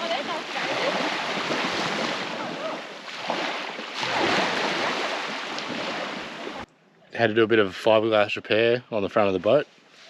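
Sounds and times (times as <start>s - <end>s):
surf rushing: 0.0s - 6.7s.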